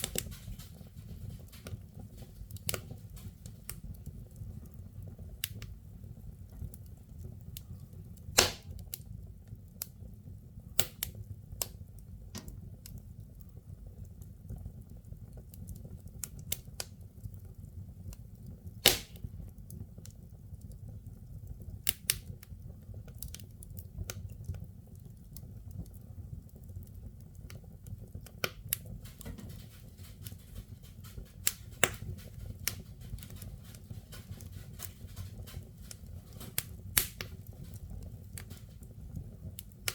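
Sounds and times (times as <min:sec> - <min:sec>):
firewood crackling and popping: 0:00.0 - 0:39.9
low fire rumble: 0:00.0 - 0:39.9
loud wood snaps: 0:08.4 - 0:09.0, 0:10.8 - 0:11.7, 0:12.4 - 0:12.6, 0:18.8 - 0:19.3, 0:35.8 - 0:37.4.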